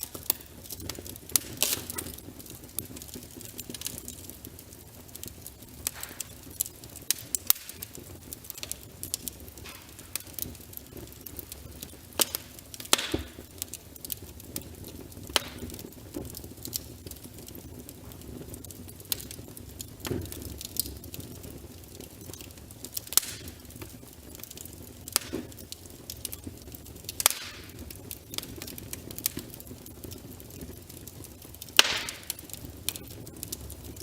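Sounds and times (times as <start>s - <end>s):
low rumble of flame: 0.0s - 34.0s
wood fire crackling and popping: 0.0s - 34.0s.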